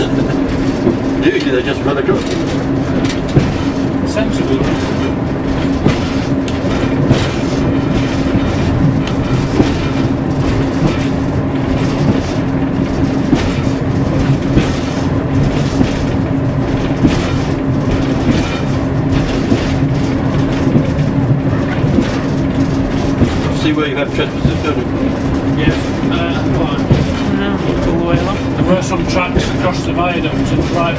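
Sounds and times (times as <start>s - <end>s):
diesel railbus engine drone: 0.0s - 30.9s
knocks and rattles: 0.0s - 30.9s.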